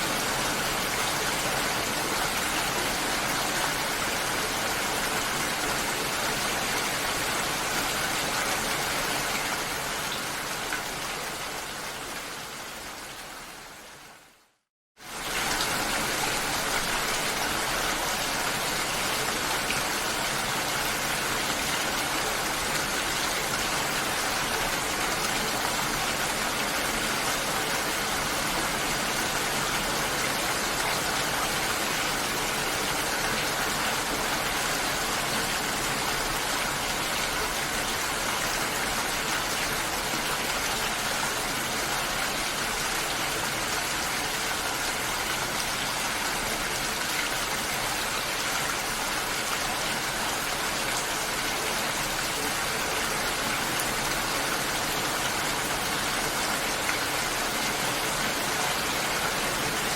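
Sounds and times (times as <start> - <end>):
water rushing: 0.0 - 12.4.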